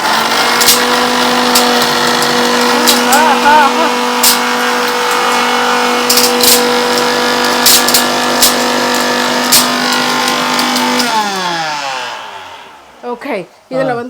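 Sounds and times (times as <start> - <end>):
mixer grinder running: 0.0 - 13.4.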